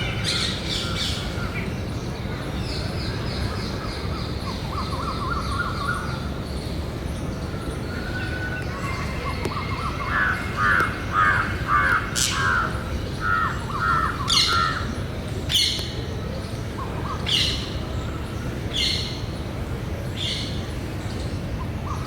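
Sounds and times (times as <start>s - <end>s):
parakeets screeching: 9.6s - 14.9s.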